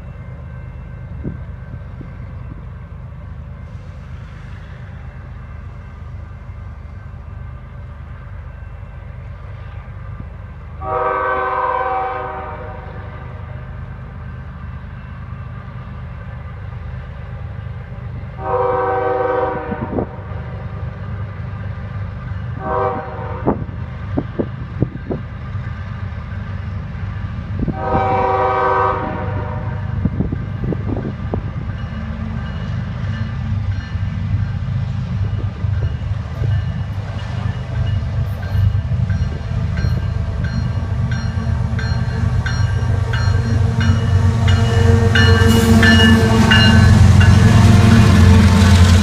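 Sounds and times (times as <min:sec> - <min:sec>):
locomotive horn: 0:10.8 - 0:13.6, 0:18.4 - 0:20.7, 0:22.6 - 0:23.7, 0:27.6 - 0:30.2, 0:41.6 - 0:49.0
locomotive engine rumble: 0:23.5 - 0:49.0.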